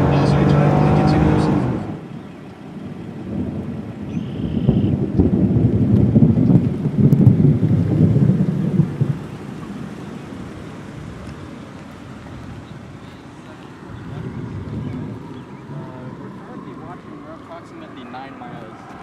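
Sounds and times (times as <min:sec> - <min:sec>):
rolling thunder: 0:02.8 - 0:11.4, 0:13.8 - 0:17.1.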